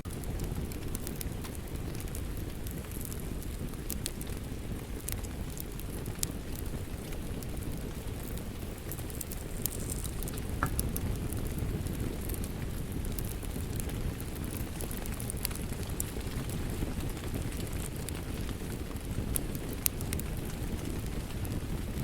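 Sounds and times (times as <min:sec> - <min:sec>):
steady rain: 0:00.0 - 0:22.0
wood fire crackling and popping: 0:00.1 - 0:22.0.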